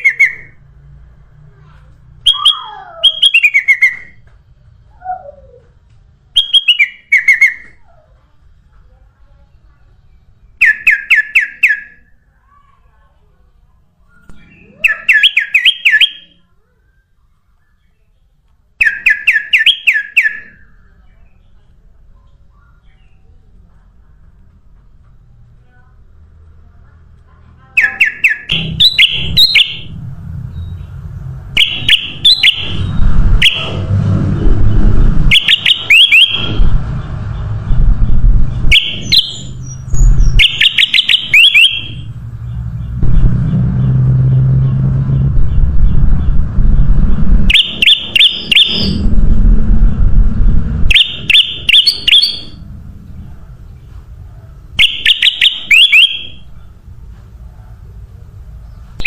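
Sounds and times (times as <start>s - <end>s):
bird chirping: 0.0s - 0.7s, 2.2s - 4.2s, 6.4s - 8.0s, 9.6s - 12.1s, 14.0s - 23.4s, 27.6s - 33.8s, 34.6s - 37.9s, 38.5s - 49.1s, 50.9s - 54.0s, 54.8s - 56.8s
steady low rumble: 20.6s - 54.9s, 55.6s - 59.0s.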